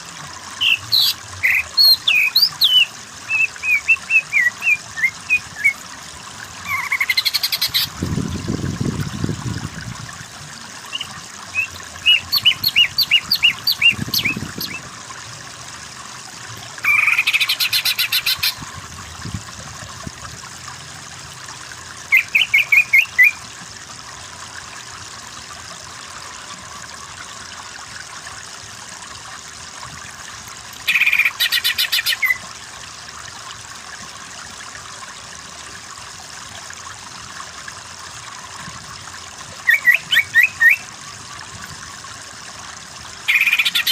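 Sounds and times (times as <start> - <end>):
bird singing trills: 0.6 - 5.8, 6.6 - 7.9, 10.9 - 14.8, 39.7 - 40.9, 43.3 - 43.9.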